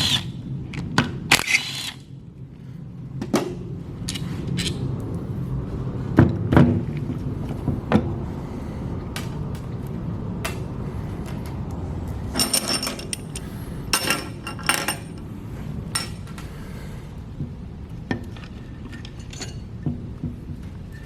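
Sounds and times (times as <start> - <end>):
metal tools clinking: 12.3 - 15.2, 18.2 - 19.8.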